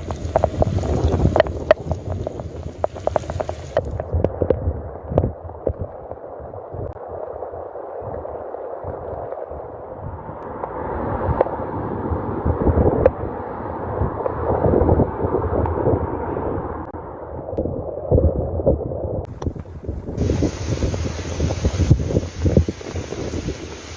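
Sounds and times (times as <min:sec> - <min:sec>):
rainwater running and gurgling: 0:00.0 - 0:10.4, 0:19.2 - 0:23.9.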